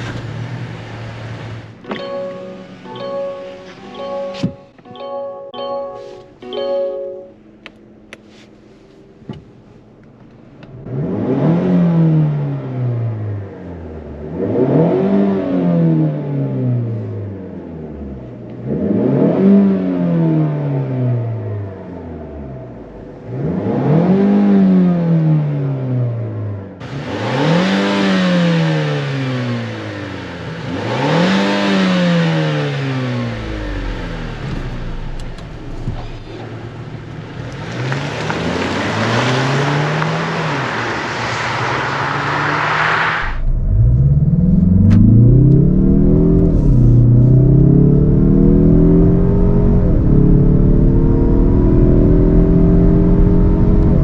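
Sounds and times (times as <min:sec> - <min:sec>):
low road rumble: 0:00.0 - 0:54.0
car engine revving: 0:10.0 - 0:54.0
car accelerating hard: 0:10.7 - 0:21.7, 0:22.3 - 0:54.0.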